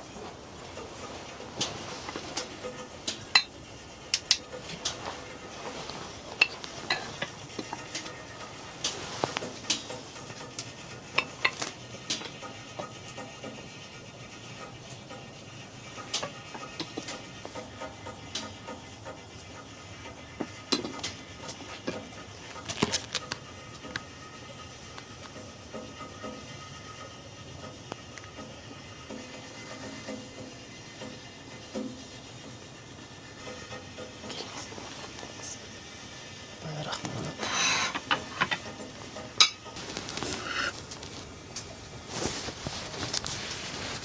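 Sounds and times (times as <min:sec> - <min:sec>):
steady hiss: 0:00.0 - 0:44.0
dishes and cutlery clinking: 0:00.8 - 0:03.6, 0:04.2 - 0:12.4, 0:36.7 - 0:44.0.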